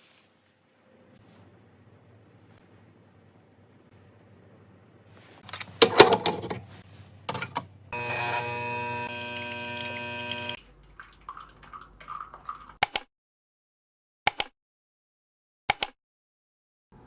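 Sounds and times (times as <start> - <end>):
handling clicks and knocks: 5.4 - 6.7
small electric appliance buzzing: 7.9 - 10.6.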